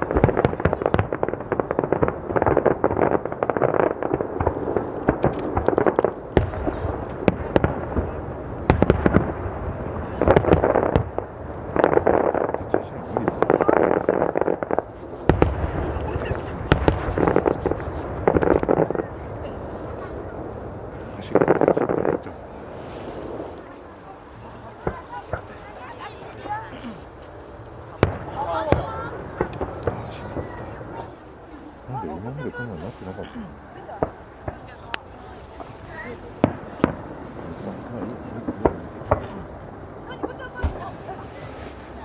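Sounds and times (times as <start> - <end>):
firework crackling: 0.0 - 32.0, 32.8 - 42.0
firework shells bursting: 2.0 - 7.3, 10.1 - 18.8.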